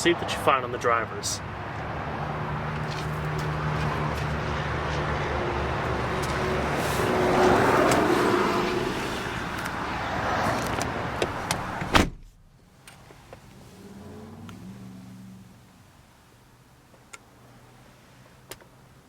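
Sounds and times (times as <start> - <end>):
car door shutting: 10.4 - 12.4.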